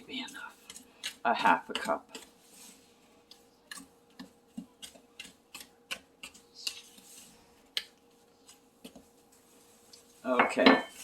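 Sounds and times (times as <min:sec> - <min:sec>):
fork scraping a mixing bowl: 0:00.0 - 0:07.3.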